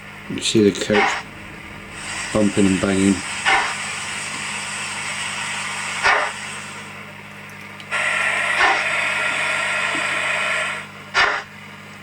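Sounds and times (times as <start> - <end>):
low steady hum: 0.0 - 8.0
steam locomotive hiss: 0.3 - 7.1, 7.9 - 11.4
sharp chuff: 0.8 - 4.5.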